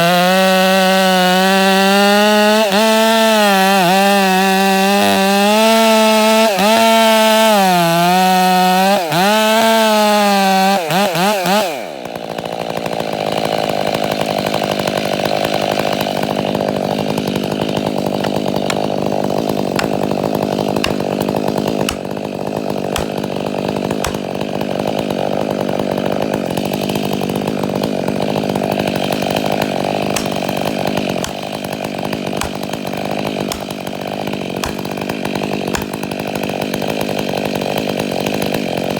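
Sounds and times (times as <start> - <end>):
chainsaw cutting at full throttle: 0.0 - 38.9.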